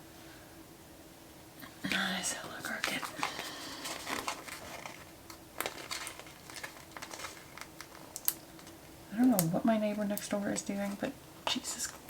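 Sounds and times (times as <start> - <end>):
faint steady hum: 0.0 - 12.0
paper crinkling: 2.6 - 9.4.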